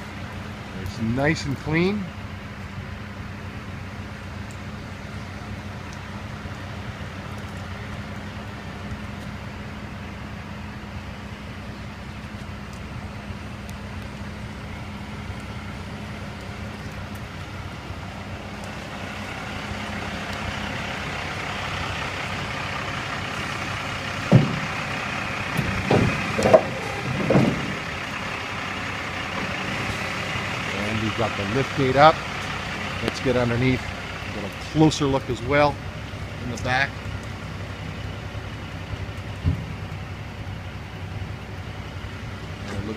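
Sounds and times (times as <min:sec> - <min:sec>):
diesel truck engine running: 0:00.0 - 0:42.9
sharp loud knocks: 0:24.3 - 0:24.8, 0:25.6 - 0:27.8.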